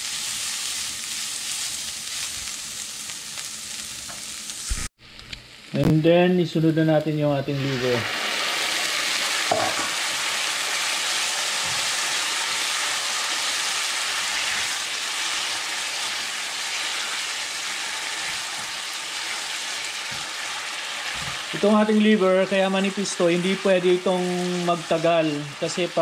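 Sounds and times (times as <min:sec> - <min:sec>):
meat sizzling in hot oil: 0:00.0 - 0:04.9, 0:07.5 - 0:26.0.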